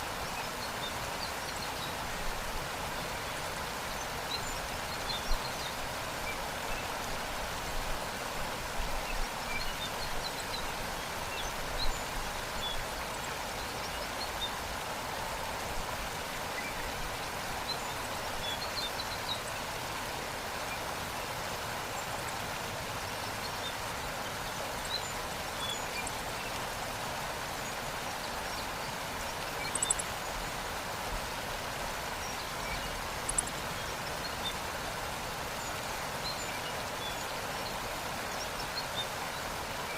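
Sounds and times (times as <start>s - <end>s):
waterfall rushing: 0.0s - 39.9s
faint bird chirps: 29.3s - 30.3s, 32.2s - 34.6s.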